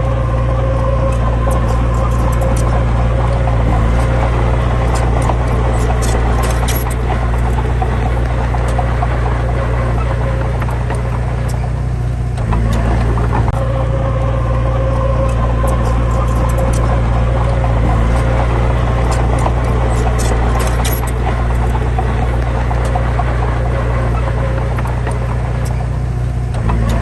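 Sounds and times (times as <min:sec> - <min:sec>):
diesel engine running: 0:00.0 - 0:27.0
light clicks and rattles: 0:15.2 - 0:27.0.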